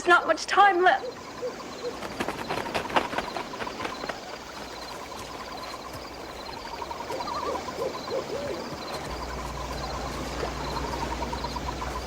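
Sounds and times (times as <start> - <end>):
owl hooting: 1.0 - 12.0
low hum: 4.6 - 12.0.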